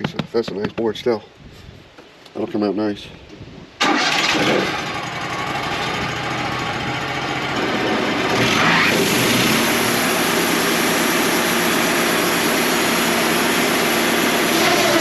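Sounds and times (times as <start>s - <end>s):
band sawmill running: 5.7s - 15.0s.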